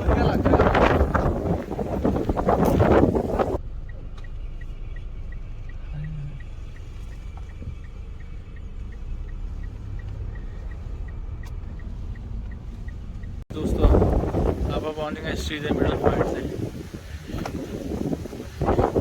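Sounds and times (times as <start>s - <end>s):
car road and engine rumble: 0.0s - 19.0s
light ticking: 3.6s - 13.4s.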